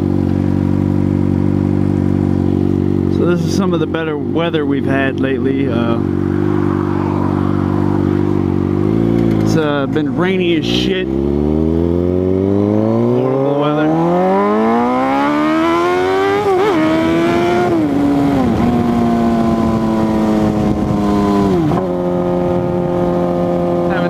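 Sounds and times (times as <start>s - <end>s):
motorcycle engine revving: 0.0s - 24.0s
gear upshifts: 5.2s - 11.6s.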